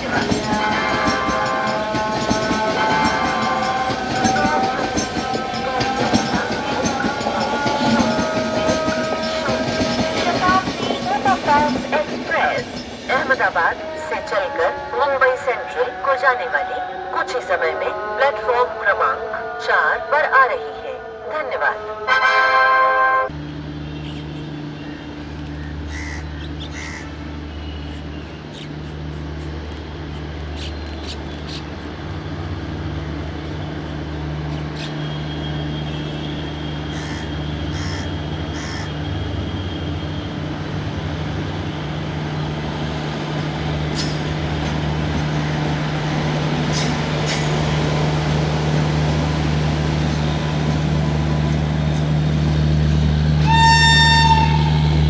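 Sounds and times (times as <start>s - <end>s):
locomotive low hum: 23.3s - 55.0s
crows cawing: 24.8s - 27.2s, 36.9s - 39.0s.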